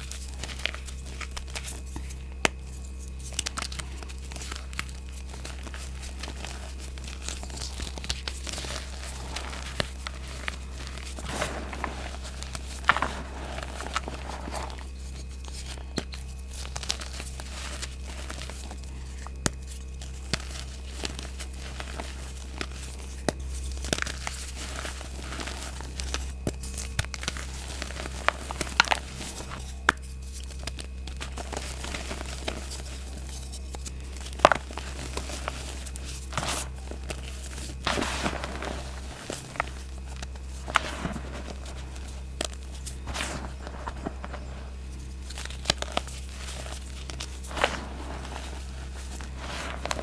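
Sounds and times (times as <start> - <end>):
chalk crunching by hand: 0.0 - 50.0.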